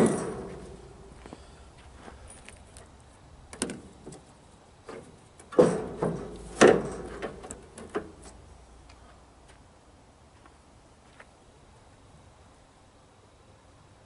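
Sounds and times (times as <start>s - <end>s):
sharp ringing knocks and clatters: 0.0s - 0.9s, 4.9s - 8.3s.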